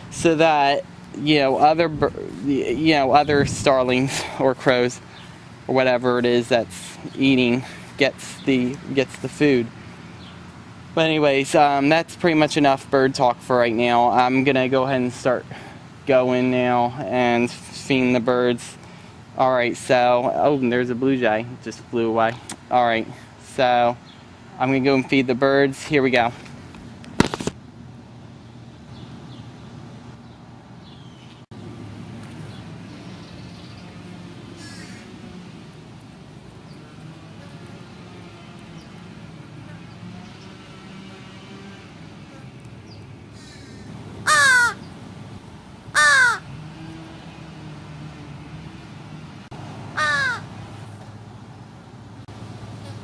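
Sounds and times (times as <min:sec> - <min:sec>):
distant traffic rumble: 0:00.0 - 0:53.0
crow cawing: 0:34.6 - 0:35.1, 0:43.4 - 0:44.9, 0:45.9 - 0:46.5, 0:49.9 - 0:50.5.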